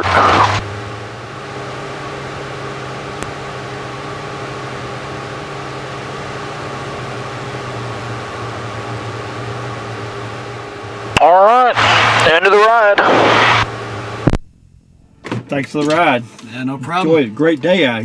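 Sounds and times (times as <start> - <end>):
propeller plane engine idling: 0.1 - 14.3.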